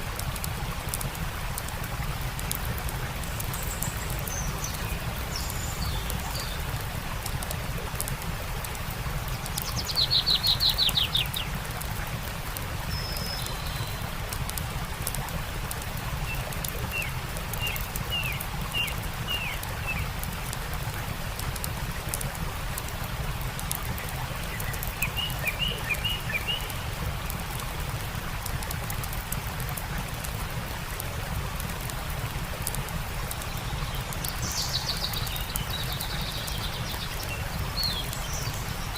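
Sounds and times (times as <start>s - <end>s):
campfire crackling: 0.0s - 38.9s
stream water rushing: 0.0s - 38.9s
songbirds calling: 2.3s - 15.1s, 15.8s - 22.2s, 23.1s - 28.1s, 32.6s - 38.9s.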